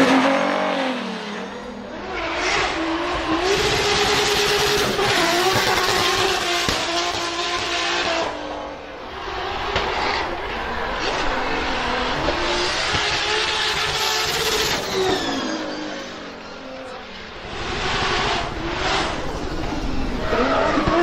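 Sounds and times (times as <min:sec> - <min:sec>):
car engine at high revs: 0:00.0 - 0:21.0.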